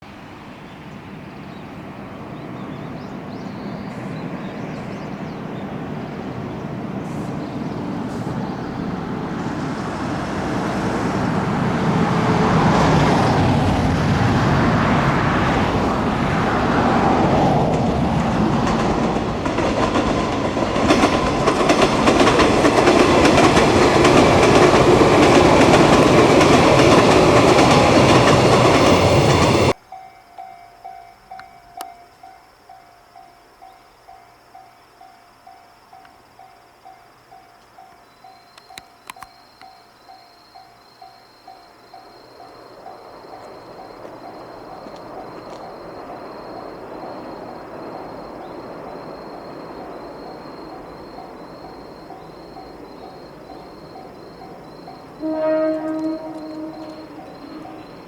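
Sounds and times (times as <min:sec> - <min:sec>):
electric train passing: 0:00.0 - 0:58.0
train wheels clattering over rail joints: 0:07.4 - 0:29.8, 0:42.0 - 0:58.0.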